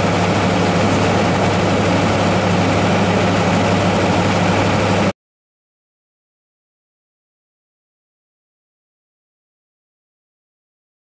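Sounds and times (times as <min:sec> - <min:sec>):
engine running at steady revs: 0:00.0 - 0:05.1.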